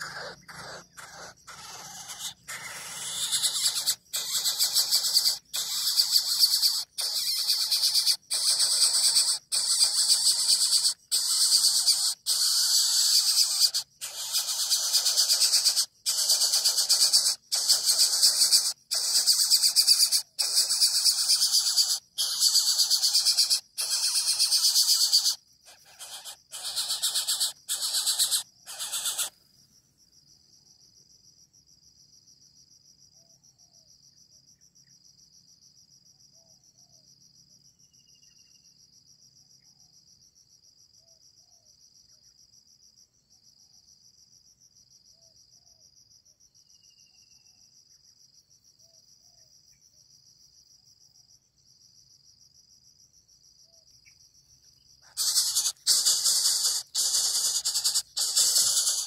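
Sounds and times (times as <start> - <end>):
bird chick hissing rasps: 0.0 - 29.4, 55.0 - 59.0
soft chirps: 0.0 - 29.5, 53.6 - 59.0
pulsing insect trill: 0.0 - 59.0.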